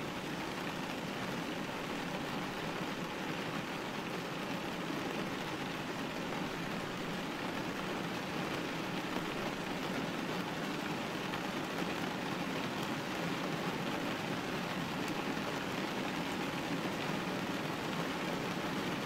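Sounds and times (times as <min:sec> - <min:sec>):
rain hitting a window: 0:00.0 - 0:19.0.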